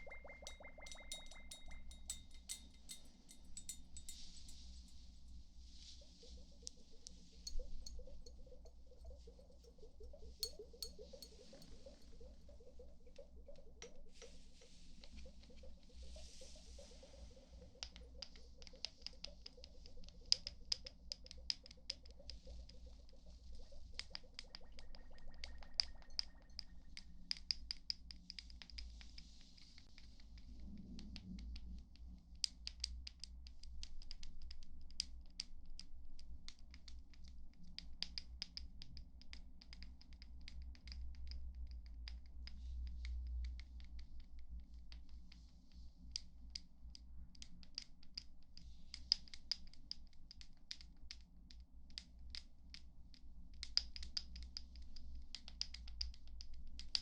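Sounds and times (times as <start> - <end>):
light tapping and scratching: 0.4 - 5.1.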